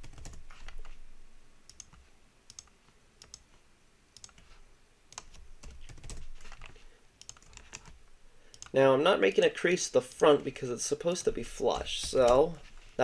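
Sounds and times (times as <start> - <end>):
keyboard and mouse clicks: 0.0 - 1.0, 1.7 - 3.6, 4.2 - 9.4, 11.2 - 12.5.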